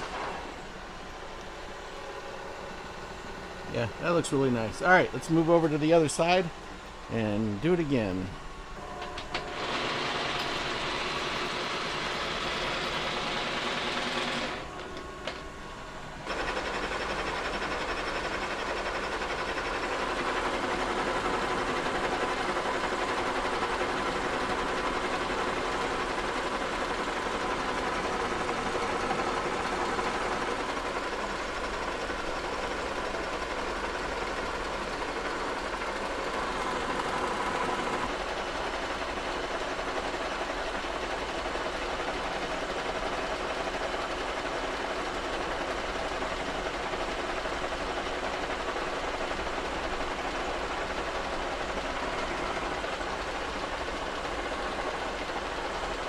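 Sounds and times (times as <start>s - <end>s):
milling machine cutting metal: 9.4s - 14.8s.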